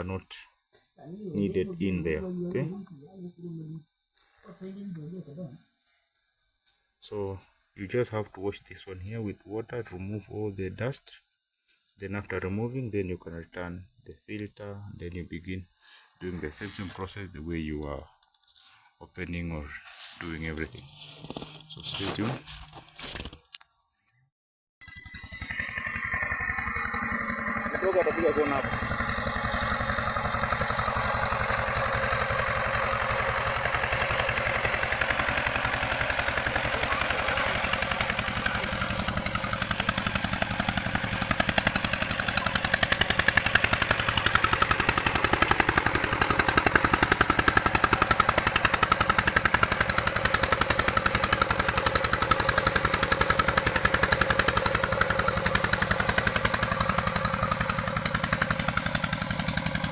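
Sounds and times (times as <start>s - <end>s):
walking tractor engine running: 25.3s - 59.9s.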